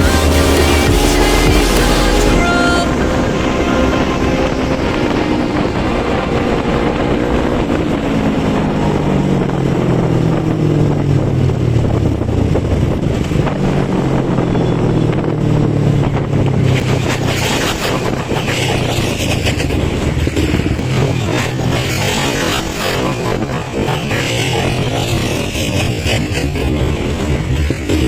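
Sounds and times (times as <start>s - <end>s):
motorcycle engine running: 0.0s - 2.4s.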